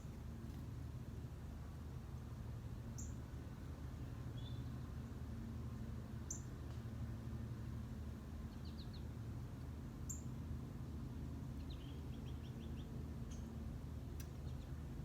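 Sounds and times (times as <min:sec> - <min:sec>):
small birds chirping: 0:02.9 - 0:03.2, 0:04.0 - 0:05.0, 0:06.2 - 0:06.8, 0:08.4 - 0:09.2, 0:10.0 - 0:10.4, 0:11.5 - 0:14.9.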